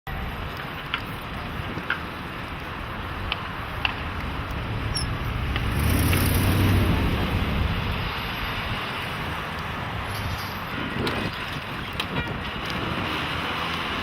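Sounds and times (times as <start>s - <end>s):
street traffic noise: 0.1s - 14.0s
vehicle passing with low rumble: 2.1s - 10.1s.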